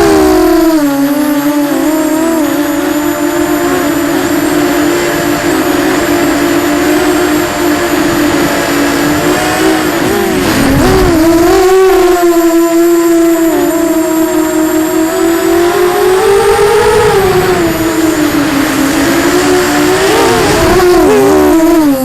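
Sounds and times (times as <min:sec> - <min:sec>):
quadcopter propellers whining: 0:00.0 - 0:22.0.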